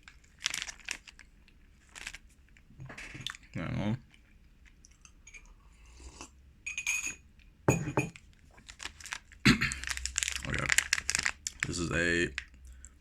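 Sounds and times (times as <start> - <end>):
faint handling rustles: 0.0 - 3.2, 8.2 - 12.7.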